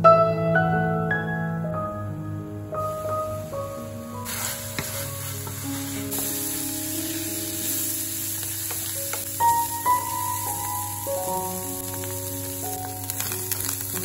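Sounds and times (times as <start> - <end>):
food sizzling in oil: 3.5 - 14.0
wooden spatula scraping pan: 4.3 - 6.6.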